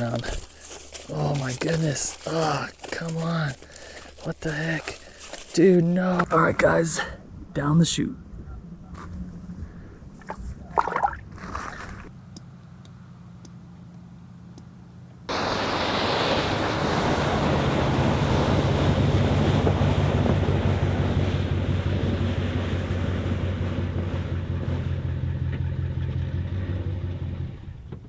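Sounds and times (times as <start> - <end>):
truck engine drone: 11.2 - 28.0
tyre and wind noise rushing: 15.3 - 25.0.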